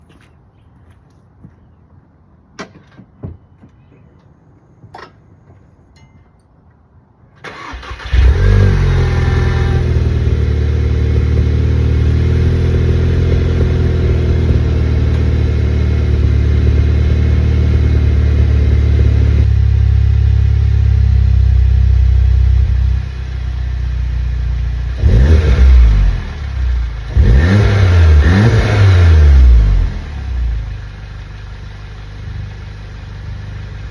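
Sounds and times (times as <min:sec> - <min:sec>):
car engine starting and revving: 0:07.4 - 0:23.4, 0:24.8 - 0:30.9.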